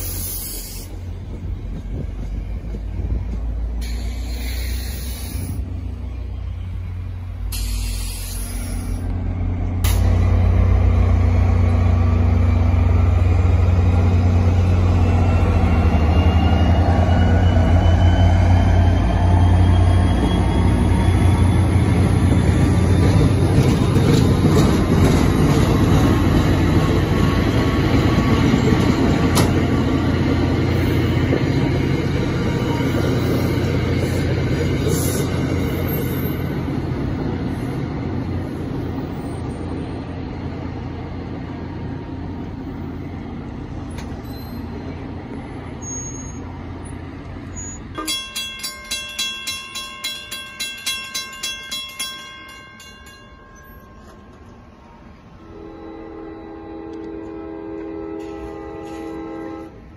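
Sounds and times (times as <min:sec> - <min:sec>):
train wheels rolling on rails: 0:00.0 - 0:55.5.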